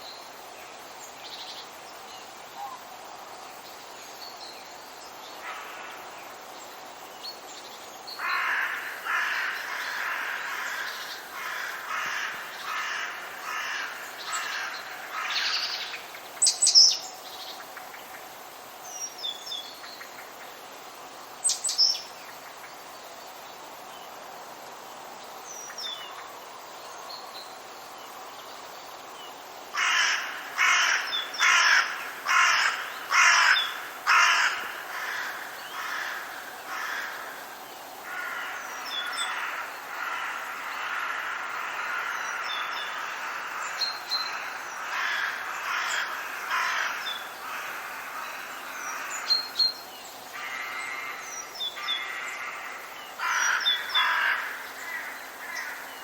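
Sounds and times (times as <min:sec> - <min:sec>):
faint steady hiss: 0:00.0 - 0:56.0
birds harsh repeated calls: 0:08.2 - 0:17.0, 0:29.8 - 0:55.9.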